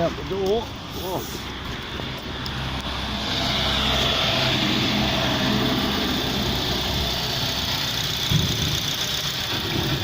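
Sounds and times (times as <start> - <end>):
car engine idling: 4.8 - 10.0.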